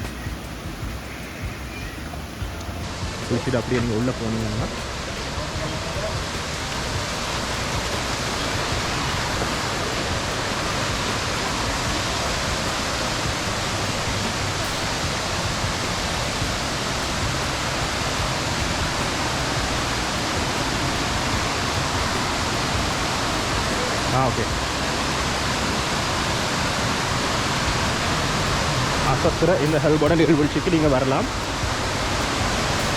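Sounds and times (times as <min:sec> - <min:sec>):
waterfall rushing: 0:00.0 - 0:32.9.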